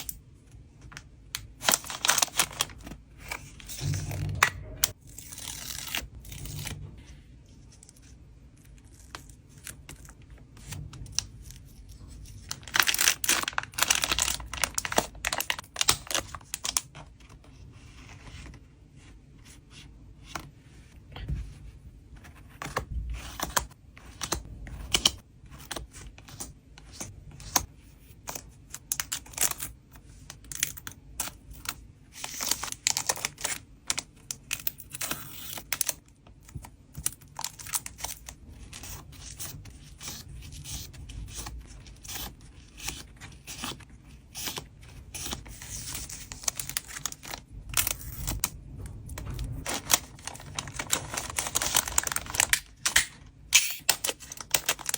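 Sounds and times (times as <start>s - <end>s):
packaging crinkling and tearing: 1.4s - 3.9s, 8.7s - 17.0s, 32.2s - 48.6s, 49.6s - 54.9s.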